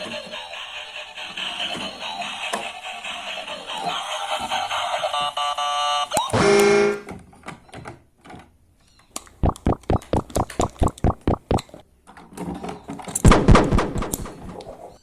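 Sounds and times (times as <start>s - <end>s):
rapid sharp clicks: 9.4s - 11.6s, 13.3s - 14.6s.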